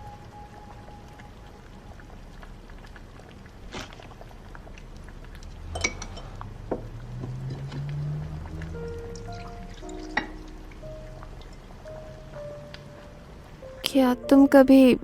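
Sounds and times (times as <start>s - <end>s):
low steady hum: 0.0s - 6.5s
dishes and cutlery clinking: 5.7s - 6.4s.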